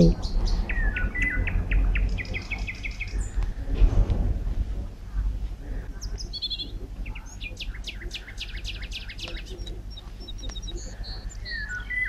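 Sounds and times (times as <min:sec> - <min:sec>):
bird trill: 0:00.0 - 0:03.3, 0:06.0 - 0:12.0
small birds chirping: 0:00.0 - 0:03.8, 0:04.8 - 0:12.0
steady low rumble: 0:00.0 - 0:12.0.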